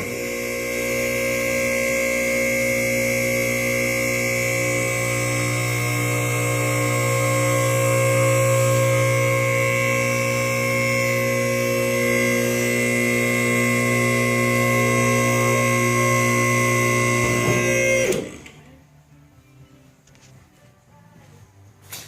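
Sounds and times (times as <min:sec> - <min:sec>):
hydraulic pump motor humming: 0:00.0 - 0:18.7.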